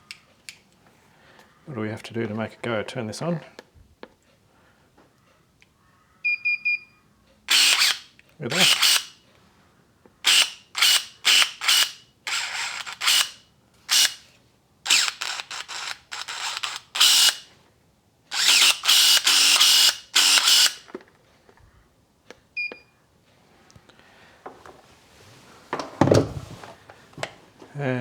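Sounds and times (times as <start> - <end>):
electric pruning shears whirring: 7.5 - 9.2, 10.2 - 14.3, 14.9 - 17.5, 18.3 - 21.0.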